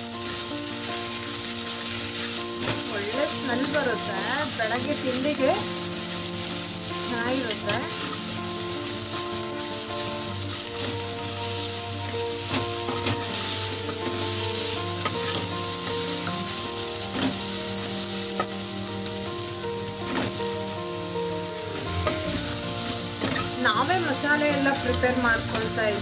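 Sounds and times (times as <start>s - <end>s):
vegetables sizzling in hot oil: 0.0s - 26.0s.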